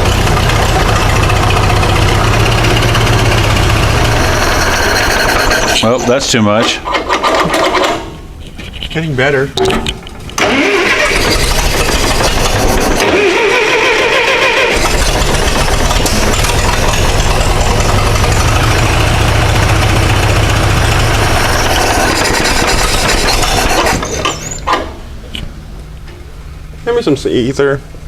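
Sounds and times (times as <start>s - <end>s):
starter motor whine: 0.0s - 5.8s, 10.4s - 25.0s
tractor engine running loudly: 0.0s - 5.8s, 10.4s - 24.4s.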